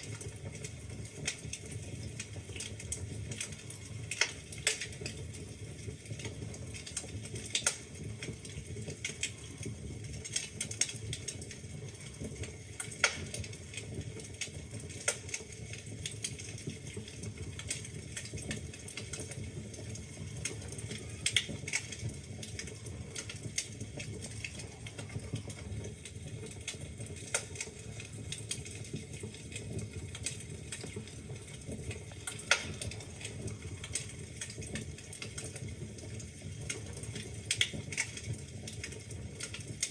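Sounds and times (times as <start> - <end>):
wood fire crackling: 0.0 - 39.9
log popping: 31.9 - 33.2.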